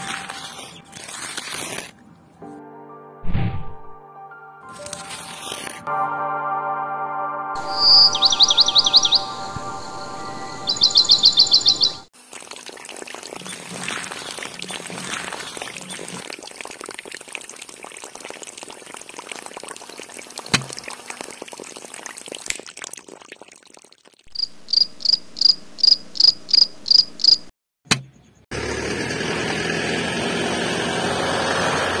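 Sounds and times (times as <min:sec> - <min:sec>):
water trickling into pond: 0:11.8 - 0:24.9.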